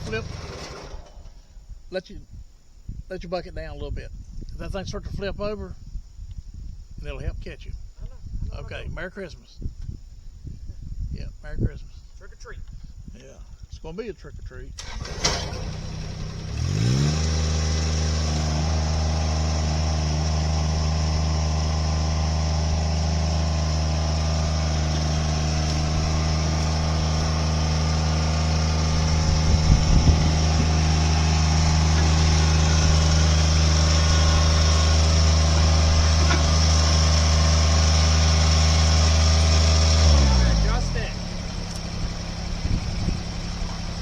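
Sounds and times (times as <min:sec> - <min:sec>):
loader engine revving: 0:00.0 - 0:01.2, 0:14.8 - 0:44.0.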